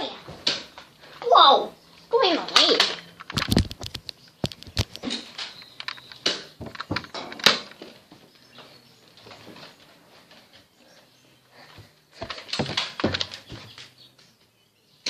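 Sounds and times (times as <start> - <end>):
irregular knocks and thumps: 3.2 - 8.2, 11.8 - 14.0.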